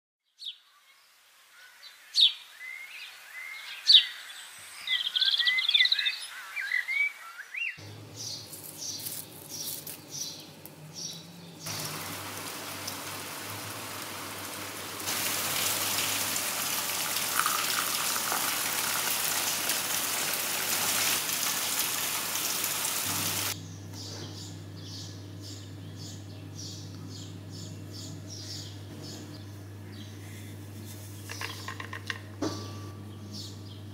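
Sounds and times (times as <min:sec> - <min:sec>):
steady hiss of water: 0:11.6 - 0:23.6.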